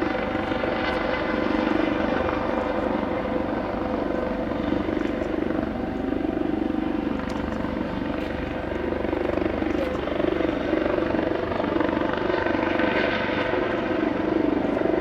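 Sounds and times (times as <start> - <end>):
jet engine whine: 0.0 - 15.0
jet engines roaring: 0.0 - 15.0.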